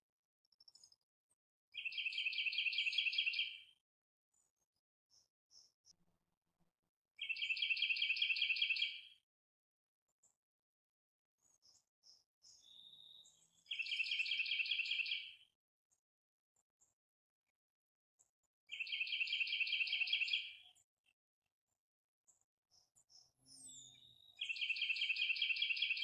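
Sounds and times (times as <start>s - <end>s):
songbird trilling: 13.7s - 15.2s, 18.7s - 20.6s, 23.5s - 26.0s.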